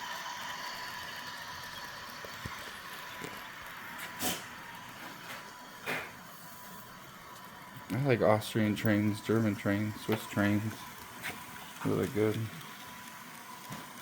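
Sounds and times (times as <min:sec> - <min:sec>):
faint steady whine: 0:00.0 - 0:14.0
model train hiss and hum: 0:00.0 - 0:14.0
short hissing puffs: 0:04.0 - 0:04.6.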